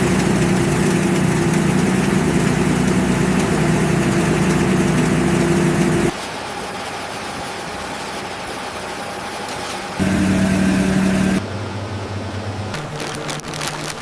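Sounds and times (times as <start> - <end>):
factory machinery humming: 0.0 - 6.1, 10.0 - 13.0.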